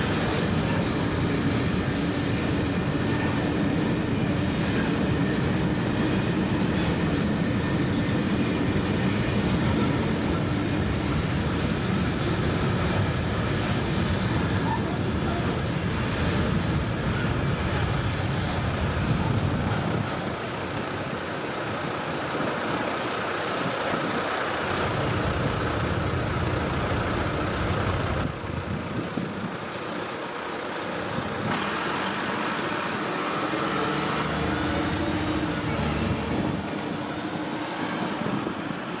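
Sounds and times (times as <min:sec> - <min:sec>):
steel wheels on rails: 0:09.4 - 0:39.0.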